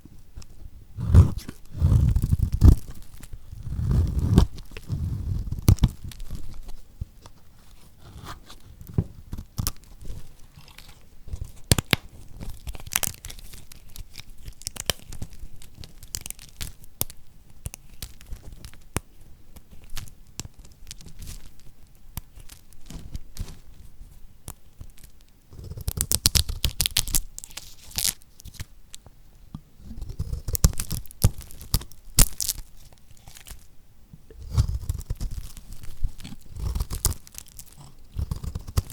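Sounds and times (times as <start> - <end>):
knife crunching through soap: 1.0 - 6.4, 29.8 - 33.6, 34.4 - 38.9.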